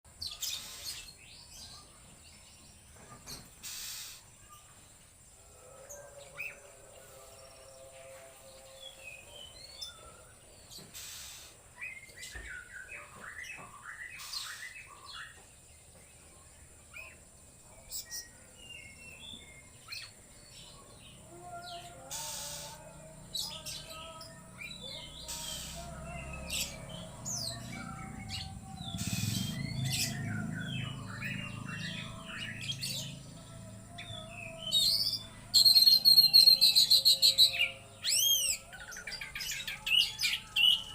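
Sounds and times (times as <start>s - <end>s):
bird singing whistles and chirps: 34.0s - 40.9s.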